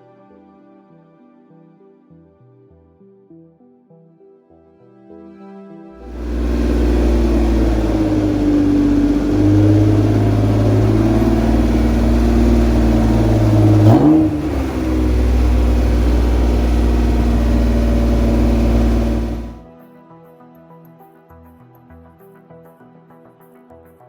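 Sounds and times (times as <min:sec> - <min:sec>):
car engine idling: 0:06.0 - 0:19.6.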